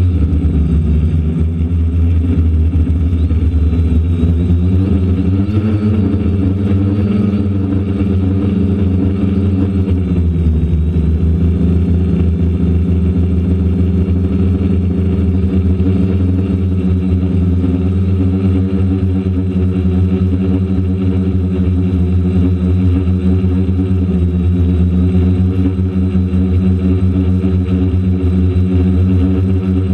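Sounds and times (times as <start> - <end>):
low rumble: 0.0 - 14.1, 29.6 - 29.9
quadcopter propellers humming: 0.0 - 29.9.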